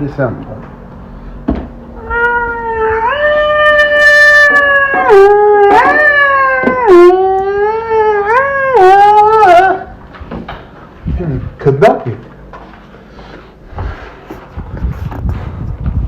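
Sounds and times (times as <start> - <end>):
cartoon cat yowling: 2.0 - 9.9.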